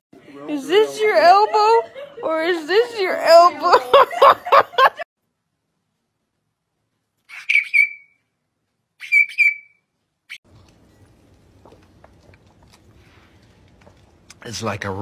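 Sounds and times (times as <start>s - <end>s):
high whistle-like squeaks: 7.3s - 8.3s, 9.0s - 9.9s.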